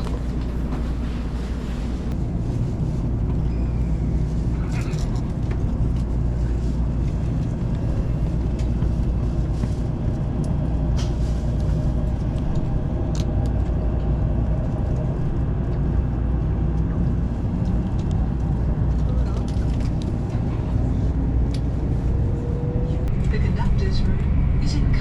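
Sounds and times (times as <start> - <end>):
train rumbling inside passenger car: 0.0 - 25.0.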